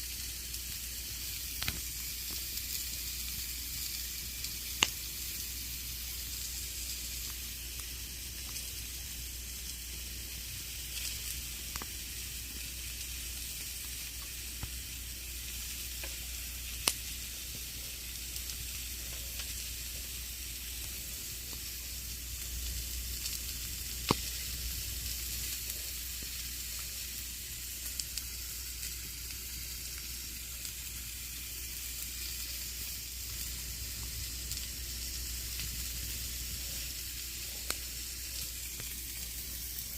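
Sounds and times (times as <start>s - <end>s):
campfire hissing and crackling: 0.0s - 39.9s
sharp fire pops: 1.6s - 2.4s, 4.4s - 5.1s, 16.8s - 17.2s, 22.5s - 25.5s.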